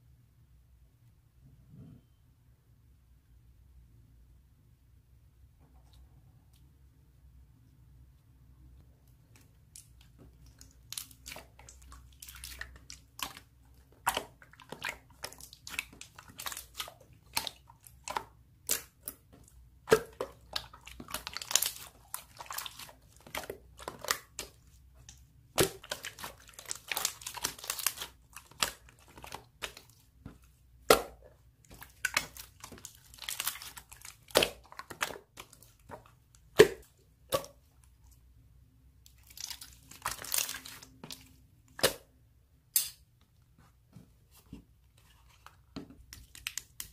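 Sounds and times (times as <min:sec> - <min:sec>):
slime clicking and crackling: 0:09.3 - 0:37.6, 0:39.1 - 0:42.0.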